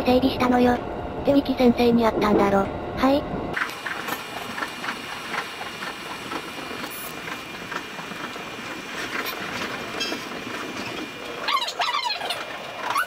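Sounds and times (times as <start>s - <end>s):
electric train running: 0.0s - 13.0s.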